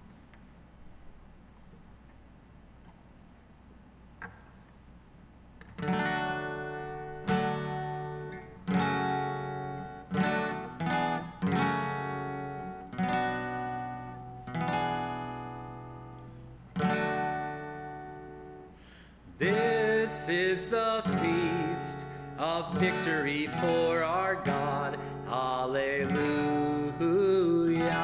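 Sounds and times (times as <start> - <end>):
acoustic guitar strumming chords: 5.7 - 28.0.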